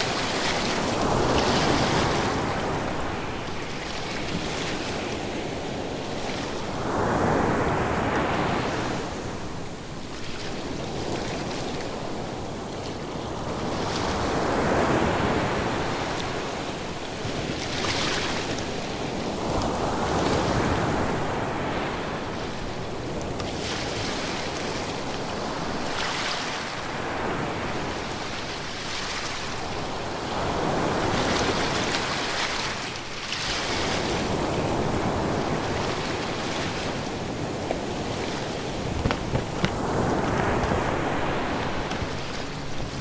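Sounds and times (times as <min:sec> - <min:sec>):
ocean waves breaking: 0:34.6 - 0:43.0.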